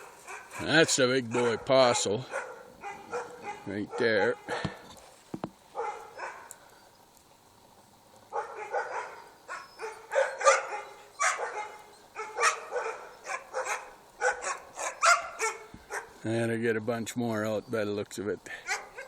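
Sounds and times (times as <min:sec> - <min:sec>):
dogs barking sharply: 0:00.0 - 0:04.8, 0:05.7 - 0:06.5, 0:08.3 - 0:16.2, 0:18.6 - 0:19.0.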